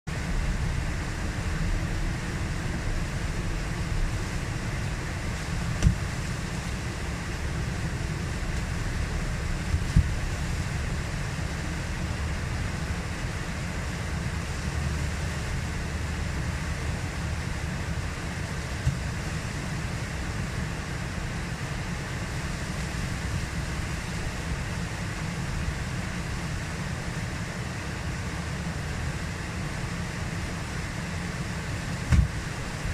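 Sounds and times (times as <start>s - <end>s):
whitewater rushing: 0.2s - 32.9s
wind on microphone: 0.4s - 13.0s
sharp knocks: 32.1s - 32.4s.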